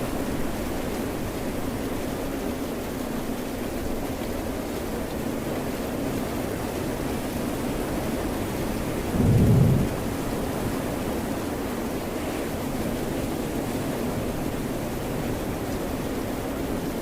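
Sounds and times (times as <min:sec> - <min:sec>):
steady rain: 0:00.0 - 0:17.0
ocean surf: 0:09.1 - 0:11.2
loud low rumble: 0:09.2 - 0:10.8.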